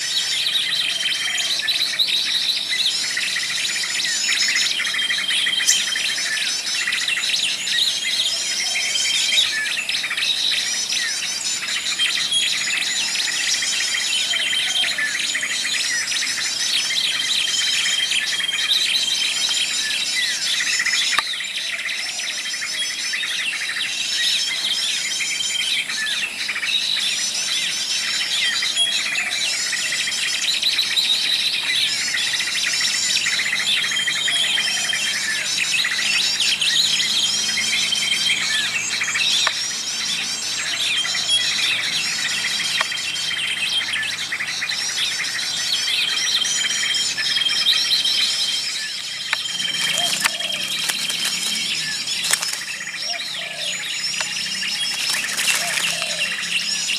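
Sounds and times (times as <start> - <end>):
songbirds chirping: 0.0 - 56.9
insects buzzing: 47.0 - 56.9.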